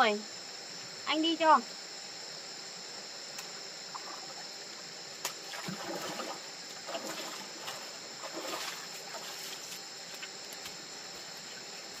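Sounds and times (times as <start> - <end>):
crickets and insects chirping: 0.0 - 12.0.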